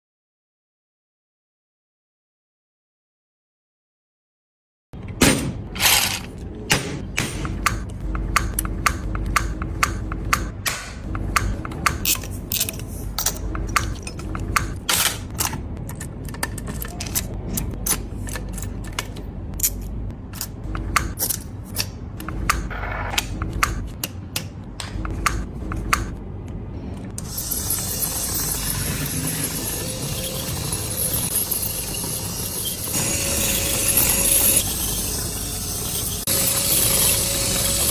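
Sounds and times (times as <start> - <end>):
low steady hum: 5.0 - 31.4
small metal parts clicking: 11.3 - 22.6.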